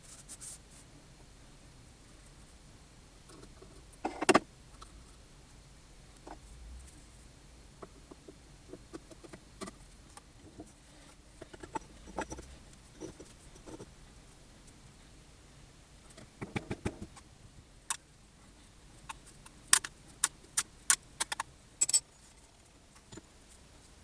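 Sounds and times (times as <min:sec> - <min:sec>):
metal parts and tools clicking: 0:19.1 - 0:23.2.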